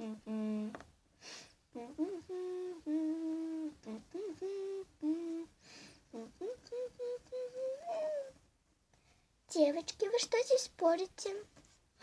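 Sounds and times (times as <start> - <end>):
child breathing: 1.2 - 1.6, 5.6 - 6.1
child making wordless sounds: 6.2 - 8.3, 9.5 - 11.5.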